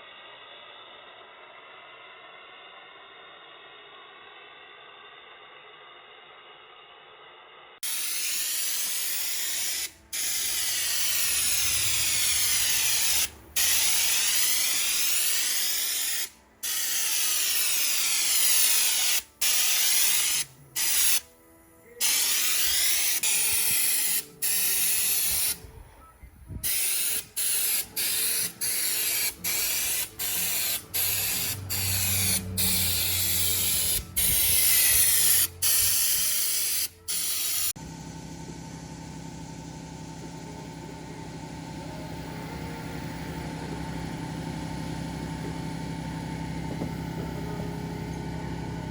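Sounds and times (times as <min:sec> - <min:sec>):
spray gun hissing: 0:07.8 - 0:21.3, 0:22.0 - 0:25.6, 0:26.6 - 0:37.8.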